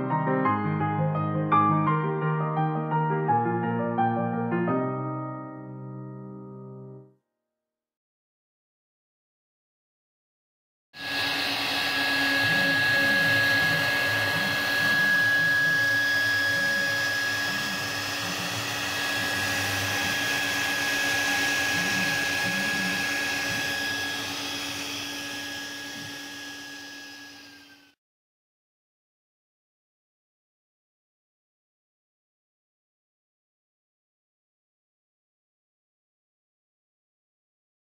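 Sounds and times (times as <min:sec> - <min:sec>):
router spindle carving wood: 0:11.0 - 0:28.0.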